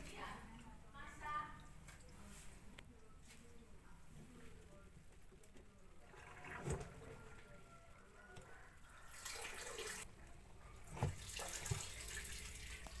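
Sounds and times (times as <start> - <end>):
water running in gushes: 9.0 - 10.0, 10.9 - 13.0.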